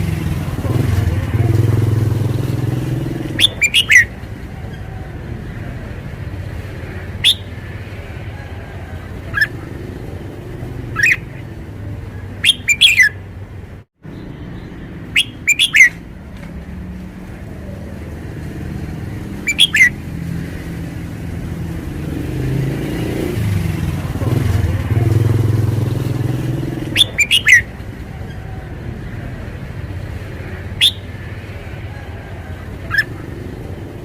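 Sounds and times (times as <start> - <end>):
bird calling: 2.4 - 5.2, 6.6 - 13.4, 15.0 - 16.1, 19.2 - 20.0, 26.2 - 29.4, 30.3 - 34.0.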